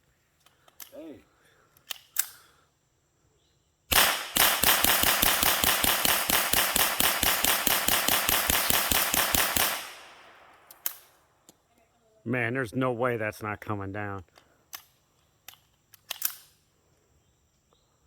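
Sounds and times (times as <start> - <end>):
rapid gunfire: 3.9 - 10.5.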